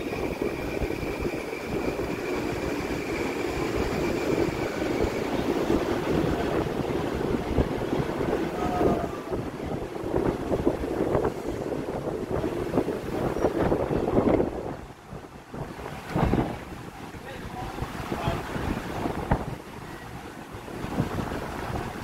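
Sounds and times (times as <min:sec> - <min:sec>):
thin high whine: 0:00.0 - 0:06.1
electric train rumbling: 0:00.0 - 0:22.0.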